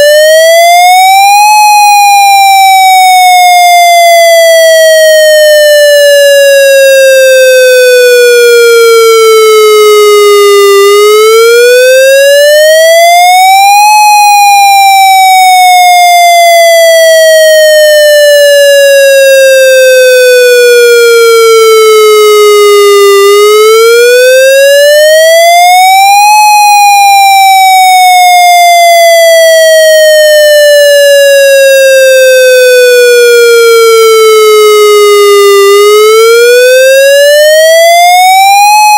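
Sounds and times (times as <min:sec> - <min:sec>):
electronic siren wailing: 0:00.0 - 0:38.9.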